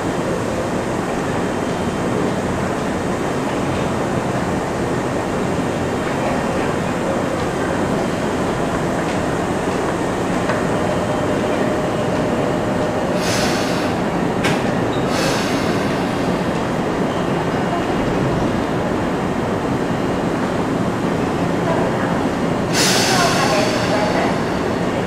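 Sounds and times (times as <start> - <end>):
electric train braking to stop: 10.6 - 16.5, 22.7 - 25.0
air hissing: 13.0 - 16.8, 22.7 - 25.0.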